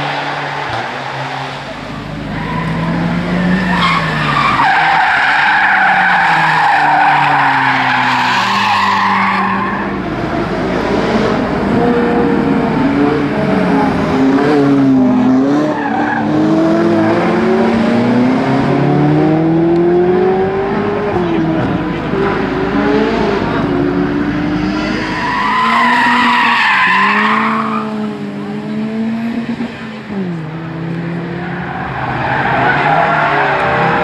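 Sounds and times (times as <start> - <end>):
car engine accelerating: 0.0 - 34.0
tyres squealing: 0.6 - 14.6, 20.8 - 28.1, 31.4 - 34.0.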